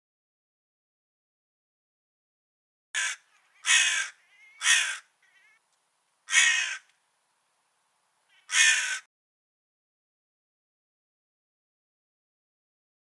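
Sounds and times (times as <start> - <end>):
crow cawing: 3.0 - 5.6, 6.2 - 7.0, 8.3 - 9.1.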